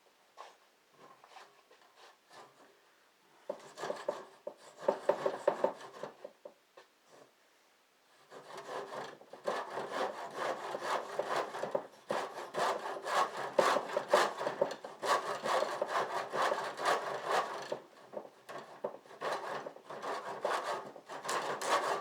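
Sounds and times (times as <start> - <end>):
hand saw cutting: 8.3 - 17.8, 18.5 - 22.0.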